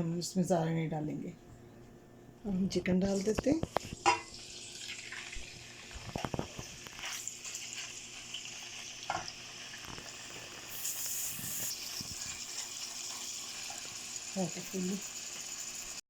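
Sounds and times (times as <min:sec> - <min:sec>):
meat sizzling in hot oil: 0:03.8 - 0:16.0.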